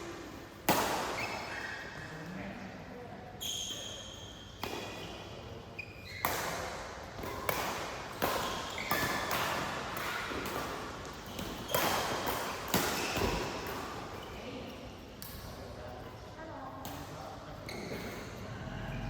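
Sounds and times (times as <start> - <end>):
rackets hitting shuttlecock: 6.2 - 14.2.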